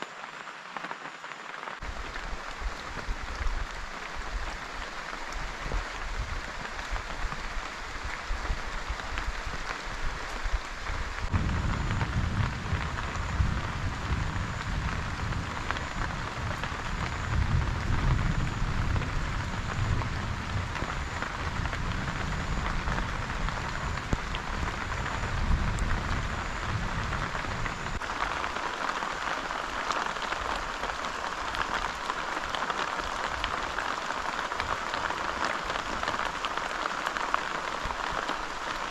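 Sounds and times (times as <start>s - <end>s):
heavy rain falling: 0.0s - 38.9s
low rumble: 8.1s - 28.0s.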